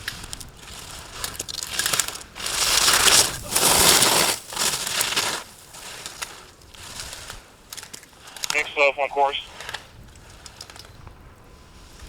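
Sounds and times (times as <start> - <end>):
ski edges scraping snow: 1.6 - 7.2.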